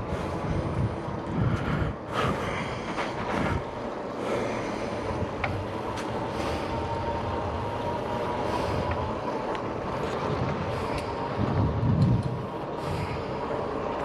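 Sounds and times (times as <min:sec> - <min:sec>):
wind on microphone: 0:00.0 - 0:03.8, 0:10.0 - 0:13.2
electric bike riding rumble: 0:00.0 - 0:14.0.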